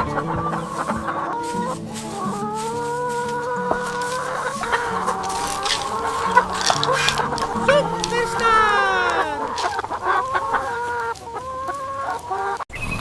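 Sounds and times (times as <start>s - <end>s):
chickens clucking: 0.0s - 12.6s
rooster crowing: 0.6s - 11.0s.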